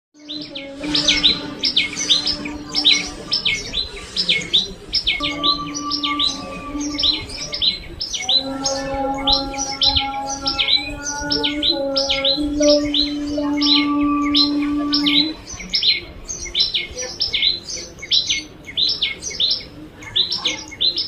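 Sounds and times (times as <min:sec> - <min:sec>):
sparrows chirping: 0:00.2 - 0:21.0.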